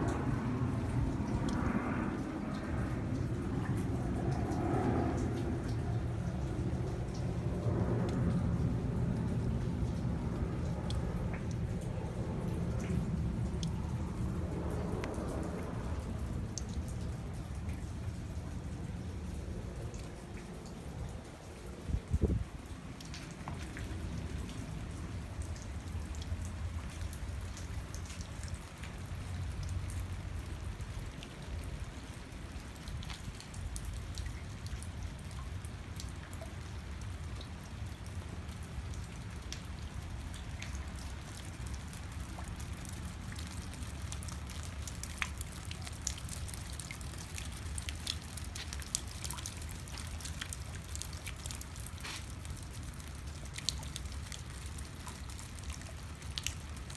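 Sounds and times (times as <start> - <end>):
steady low rumble: 0.0 - 28.0
rain falling: 0.0 - 56.9.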